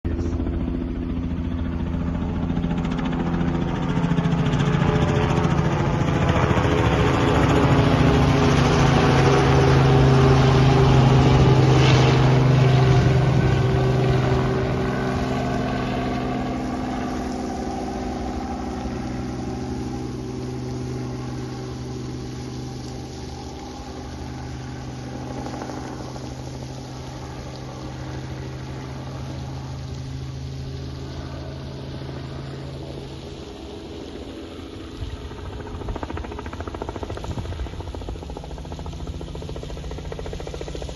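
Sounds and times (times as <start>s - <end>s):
helicopter engine and rotors: 0.0s - 40.9s.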